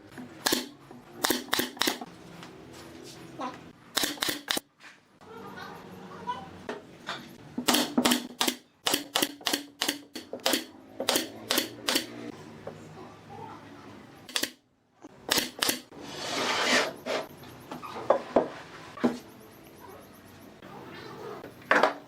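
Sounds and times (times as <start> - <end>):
sharp clicks: 0.4 - 2.1, 3.9 - 4.6, 7.7 - 12.2, 14.3 - 14.6, 15.3 - 15.9.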